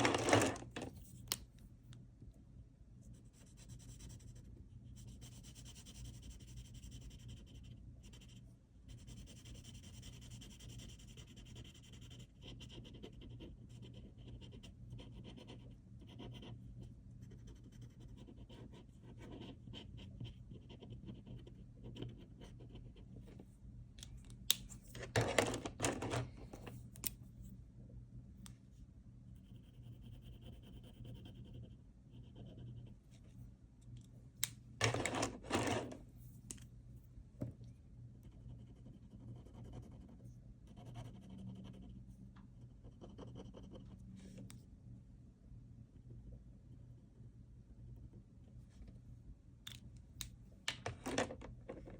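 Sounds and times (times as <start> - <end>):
steady low hum: 0.0 - 51.9
pen scratching on paper: 3.2 - 16.6, 17.2 - 23.0.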